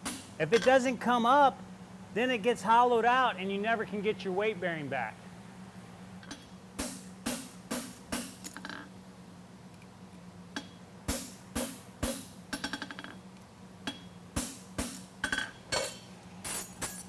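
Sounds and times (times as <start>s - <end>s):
steady low hum: 0.0s - 17.0s
hammer striking horseshoe on anvil: 10.6s - 13.2s, 13.9s - 17.0s.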